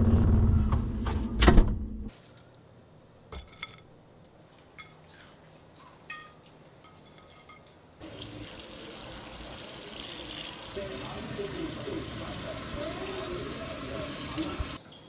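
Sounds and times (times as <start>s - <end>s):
dishes clinking: 3.3s - 7.9s.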